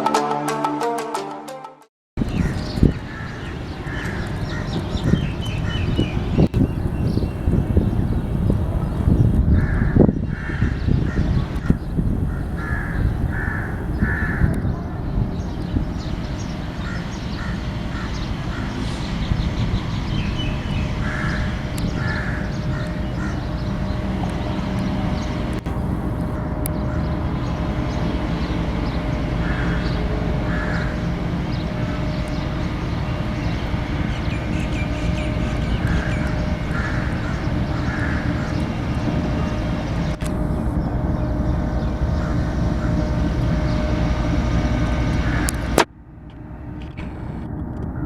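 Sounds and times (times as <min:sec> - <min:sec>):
locomotive and train rumbling: 0:02.2 - 0:48.0
crow cawing: 0:02.3 - 0:05.8, 0:09.6 - 0:14.6, 0:16.8 - 0:18.8, 0:21.0 - 0:23.6, 0:29.4 - 0:31.1, 0:35.9 - 0:38.6, 0:45.2 - 0:45.6.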